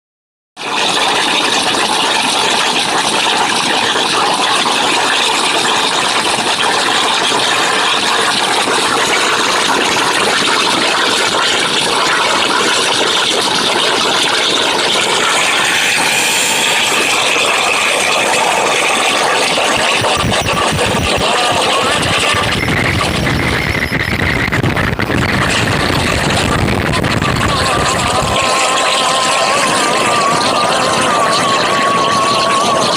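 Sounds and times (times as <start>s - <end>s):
gas cutting machine hissing: 1.0s - 24.6s.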